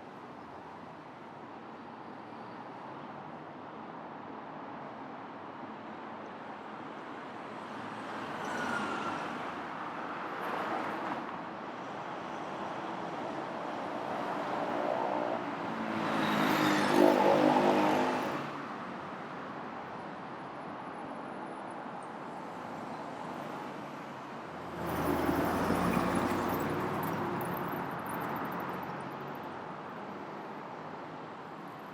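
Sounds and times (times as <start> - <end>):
cars passing: 14.0 - 18.6, 24.5 - 29.6.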